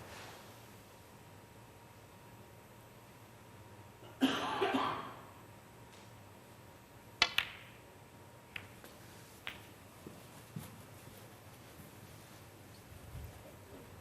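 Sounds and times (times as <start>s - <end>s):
person coughing: 4.0s - 5.2s
snooker balls clicking: 7.2s - 7.9s, 8.5s - 10.8s.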